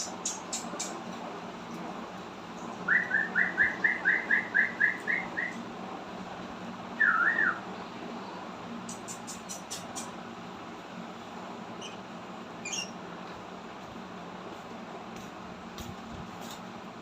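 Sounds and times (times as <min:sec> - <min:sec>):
cockatiel whistling: 0:07.0 - 0:07.6.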